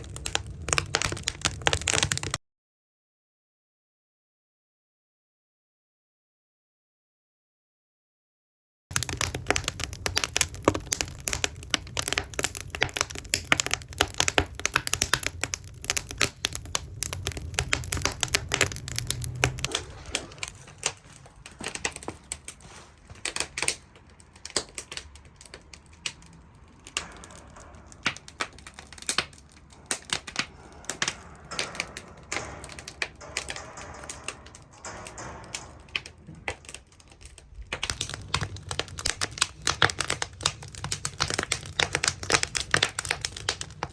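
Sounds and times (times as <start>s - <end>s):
firewood crackling and popping: 0.0s - 2.4s, 8.9s - 43.9s.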